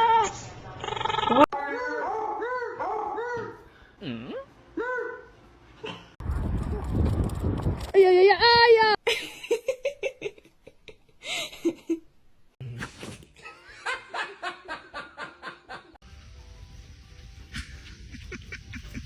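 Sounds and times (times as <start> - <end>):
people laughing: 13.4 - 16.0, 17.5 - 19.0.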